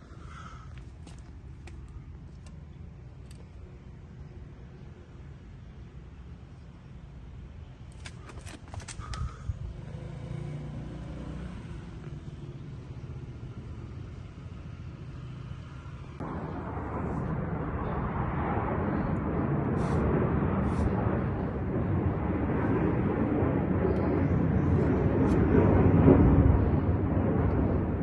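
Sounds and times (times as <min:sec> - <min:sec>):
road and wind noise: 0:00.0 - 0:28.0.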